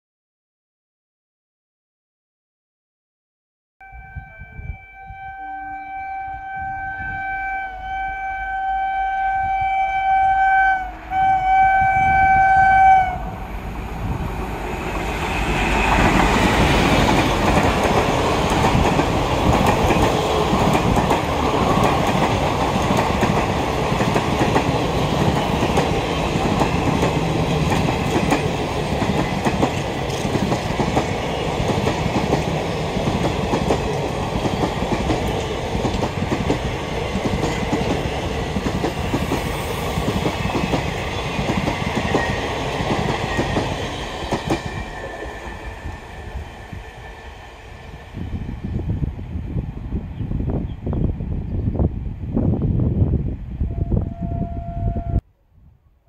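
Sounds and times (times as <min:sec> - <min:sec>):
locomotive horn blasts: 0:03.8 - 0:13.4, 0:53.7 - 0:55.2.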